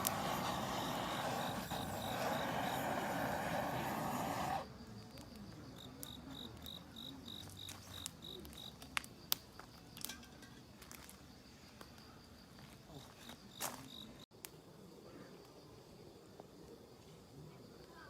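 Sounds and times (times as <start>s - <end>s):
steady rushing noise: 0.0s - 4.6s
insect chirping: 0.0s - 18.0s.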